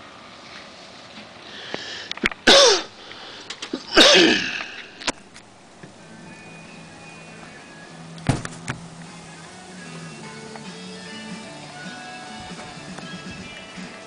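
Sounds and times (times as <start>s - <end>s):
person sneezing: 2.4s - 3.0s, 3.8s - 4.9s.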